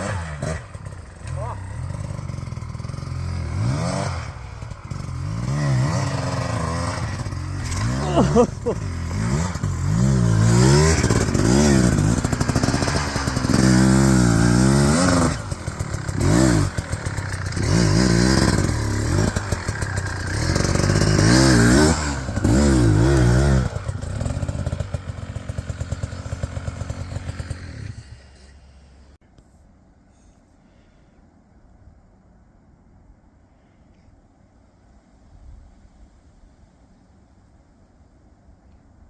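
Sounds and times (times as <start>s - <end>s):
dirt bike engine revving: 0.0s - 28.4s.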